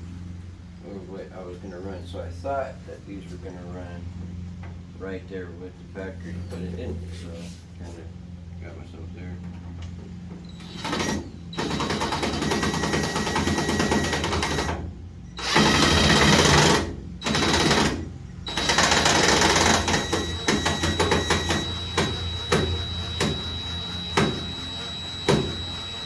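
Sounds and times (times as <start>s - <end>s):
power driver rattling: 15.4s - 26.0s.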